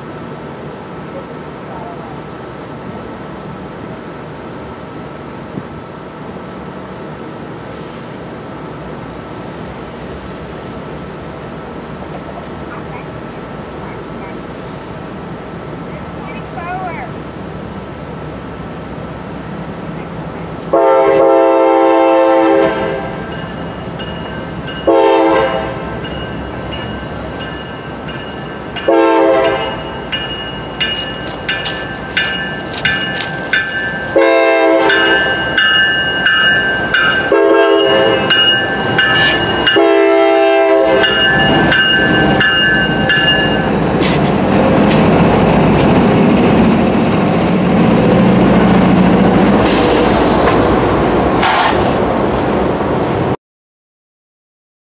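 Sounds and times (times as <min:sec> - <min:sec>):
locomotive horn blasts: 0:20.7 - 0:23.2, 0:24.8 - 0:26.0, 0:28.8 - 0:29.8, 0:34.1 - 0:35.4, 0:37.3 - 0:38.4, 0:39.7 - 0:41.2
bell ringing: 0:26.0 - 0:34.2, 0:34.9 - 0:40.0, 0:41.0 - 0:43.8.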